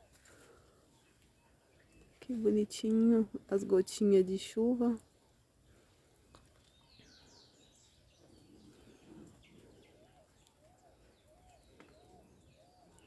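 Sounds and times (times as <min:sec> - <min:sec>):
bird chirping: 0:00.0 - 0:03.7, 0:06.3 - 0:13.0.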